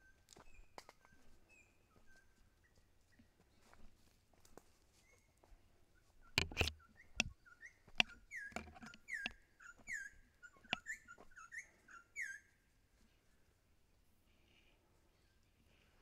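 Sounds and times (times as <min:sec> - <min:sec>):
bird chirping: 0:05.0 - 0:12.6.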